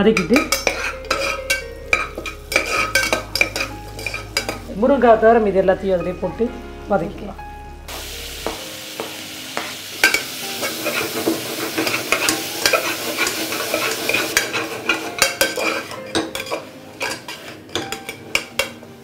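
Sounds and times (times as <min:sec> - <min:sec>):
vegetables sizzling in butter: 0:00.0 - 0:07.2, 0:07.9 - 0:19.0
metal spoon scraping a pot: 0:00.1 - 0:04.7, 0:10.0 - 0:18.9.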